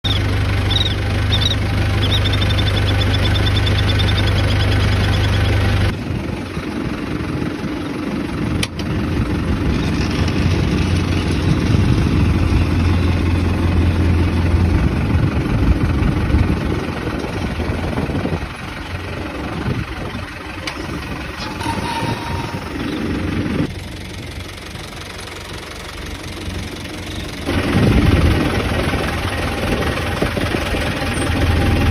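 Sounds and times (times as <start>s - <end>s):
bird calling: 0.0s - 5.9s
engine idling: 0.0s - 31.9s.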